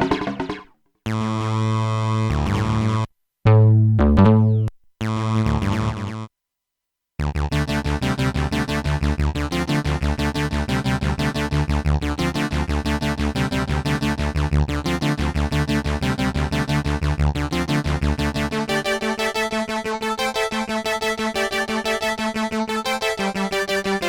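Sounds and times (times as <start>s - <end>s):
synthesizer repeated note pattern: 0.0s - 0.7s
low synth bass line: 3.5s - 6.2s.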